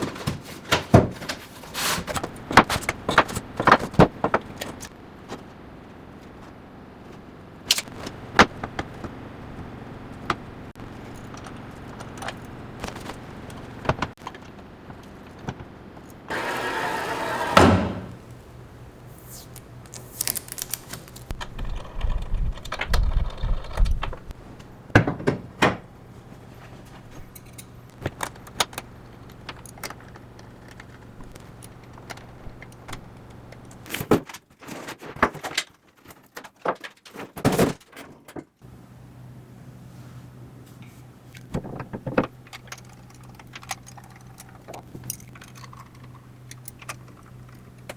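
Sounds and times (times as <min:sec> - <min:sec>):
steady low hum: 0:38.6 - 0:47.9.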